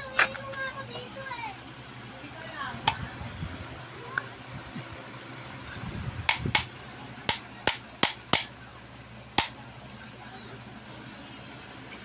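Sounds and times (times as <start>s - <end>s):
steady low hum: 0.0s - 12.0s
sharp knocks: 7.3s - 8.5s.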